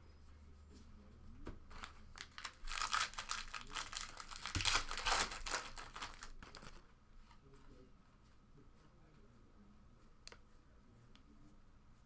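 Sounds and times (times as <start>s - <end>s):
foil wrapper tearing and crinkling: 1.7s - 6.8s.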